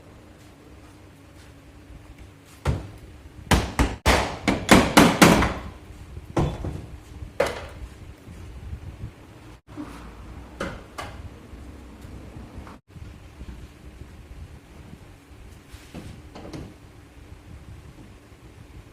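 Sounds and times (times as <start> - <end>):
hammer striking car bodywork: 3.5 - 5.8.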